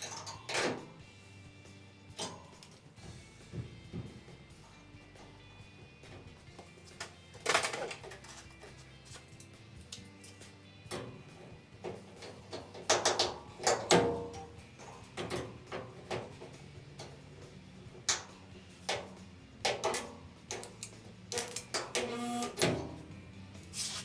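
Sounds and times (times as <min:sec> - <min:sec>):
metal tools clicking and knocking: 0:00.0 - 0:00.8, 0:06.8 - 0:17.3, 0:17.9 - 0:23.0.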